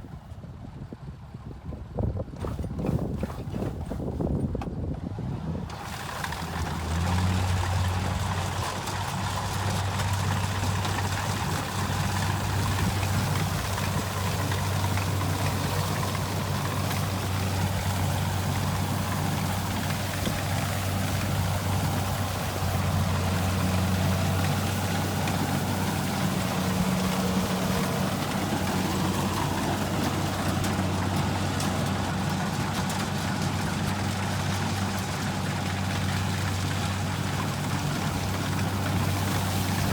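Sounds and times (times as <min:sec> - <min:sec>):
combine harvester engine hum: 0:00.0 - 0:39.9.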